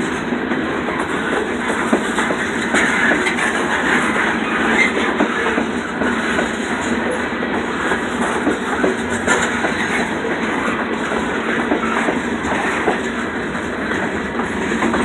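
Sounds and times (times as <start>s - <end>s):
freight train rumbling past: 0.0s - 15.0s
wheels clanking over rail joints: 0.0s - 15.0s.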